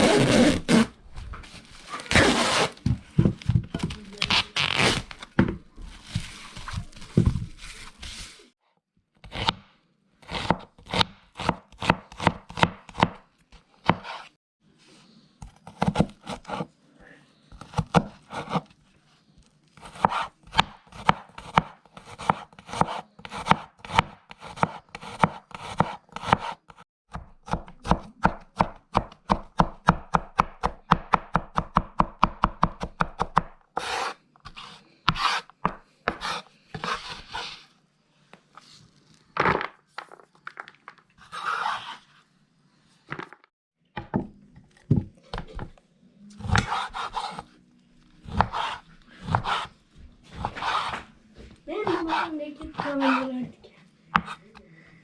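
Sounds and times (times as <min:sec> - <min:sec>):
knife chopping on a cutting board: 0:09.2 - 0:13.2, 0:13.8 - 0:14.3, 0:15.4 - 0:16.7, 0:19.8 - 0:37.5, 0:46.4 - 0:47.5, 0:48.2 - 0:49.7, 0:50.3 - 0:51.1, 0:54.1 - 0:54.4.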